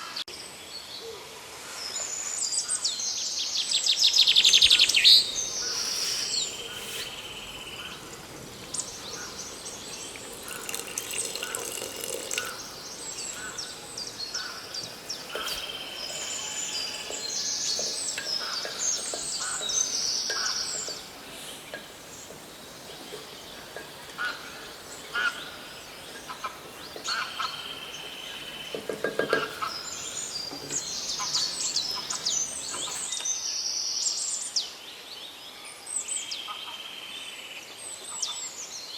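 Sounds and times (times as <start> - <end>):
birds chirping and singing: 4.2 - 33.2
low bird call: 4.3 - 33.1.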